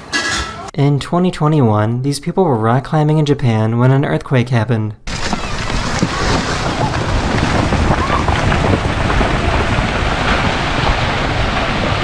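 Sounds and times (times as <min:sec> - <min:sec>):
wind buffeting microphone: 0:05.1 - 0:12.0.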